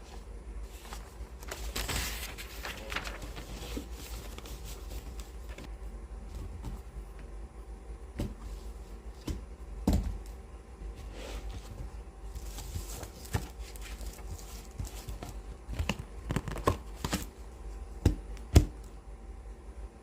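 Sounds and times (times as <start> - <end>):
paper rustle: 0.6 - 5.7, 11.0 - 17.3
fingers tapping on books: 18.0 - 18.8.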